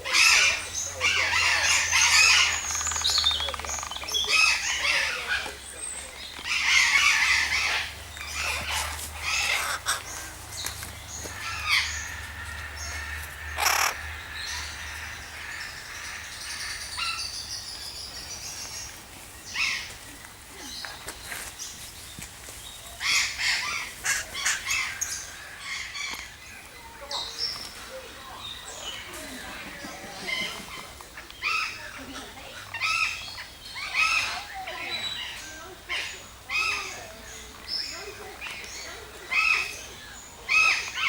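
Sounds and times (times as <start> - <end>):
birds chirping: 0.0 - 41.0
harsh crow-like squawks: 11.2 - 16.6.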